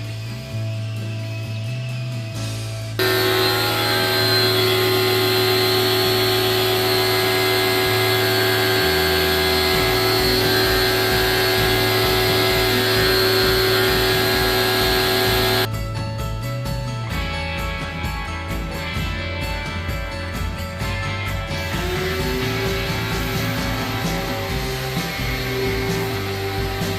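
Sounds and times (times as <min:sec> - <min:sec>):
cleaning machine hissing and whining: 0:03.0 - 0:15.7, 0:21.5 - 0:26.9.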